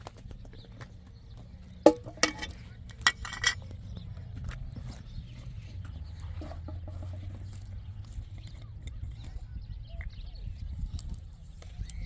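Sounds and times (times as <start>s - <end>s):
sharp knocks and clatters: 1.8s - 3.6s.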